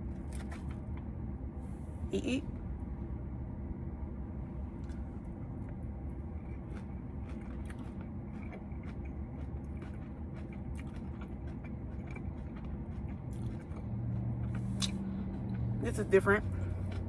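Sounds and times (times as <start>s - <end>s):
person chewing salad: 0.0s - 1.2s, 4.8s - 15.8s, 16.4s - 17.0s
steady low hum: 0.0s - 17.0s.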